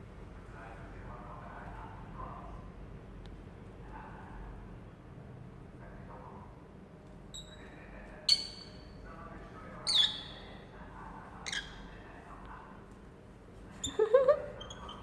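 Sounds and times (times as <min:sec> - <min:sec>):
lovebirds squawking: 0:09.9 - 0:10.5, 0:11.5 - 0:11.8.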